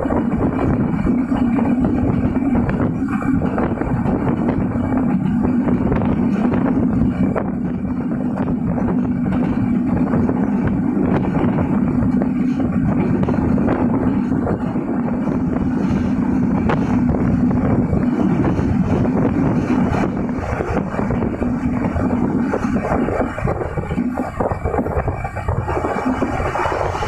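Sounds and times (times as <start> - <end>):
train wheels rumbling on track: 0.0 - 27.0
wind on microphone: 0.0 - 27.0.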